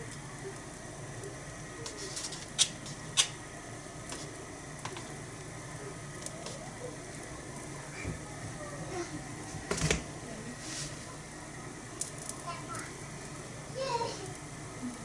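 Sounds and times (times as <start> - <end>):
food cooking on iron griddle: 0.0 - 8.0, 10.1 - 15.0.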